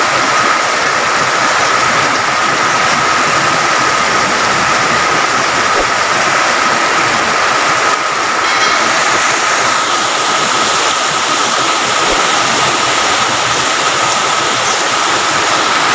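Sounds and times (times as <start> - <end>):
heavy rain pouring: 0.0 - 15.9
faint high tone: 8.4 - 10.0.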